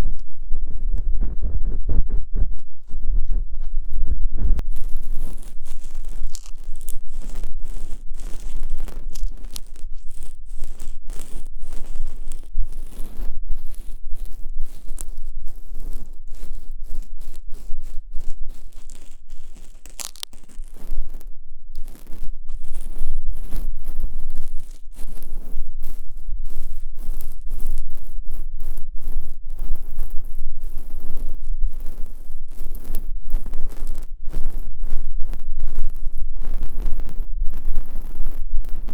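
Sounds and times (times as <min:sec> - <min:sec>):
ear-cleaning tool scratching microphone: 0:00.0 - 0:38.9.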